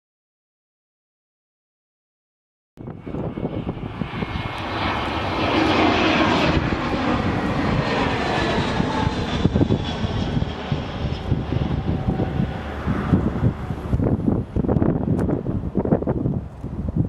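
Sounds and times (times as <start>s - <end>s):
jet engines passing: 2.8s - 17.0s.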